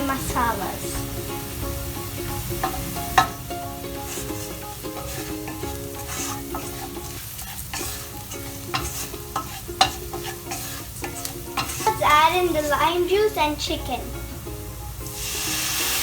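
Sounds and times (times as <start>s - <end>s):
food sizzling in hot oil: 0.0s - 16.0s
spatula clicking against pan: 5.0s - 12.0s.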